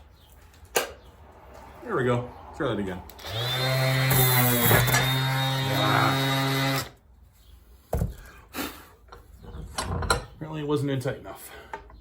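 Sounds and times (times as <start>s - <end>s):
sander running: 3.2s - 6.9s.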